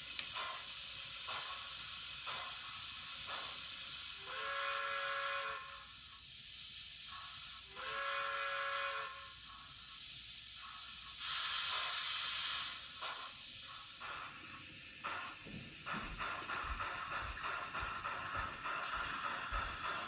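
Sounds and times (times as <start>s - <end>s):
steam hiss: 0.0s - 20.0s
steam whistle: 4.1s - 6.1s, 7.6s - 9.6s, 15.1s - 20.0s.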